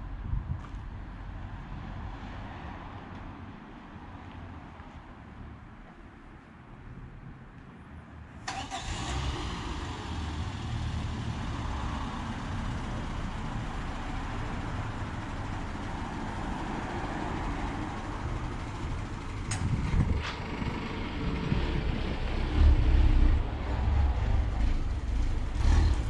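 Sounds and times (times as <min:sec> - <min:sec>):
vehicle engine starting and running: 0:08.4 - 0:26.0.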